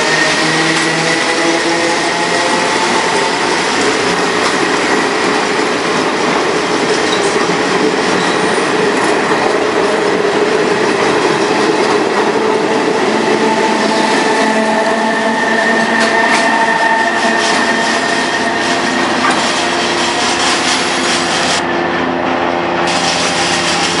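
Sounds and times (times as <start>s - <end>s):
train wheels rushing on rail: 0.0s - 24.0s
steady tones: 10.1s - 23.0s.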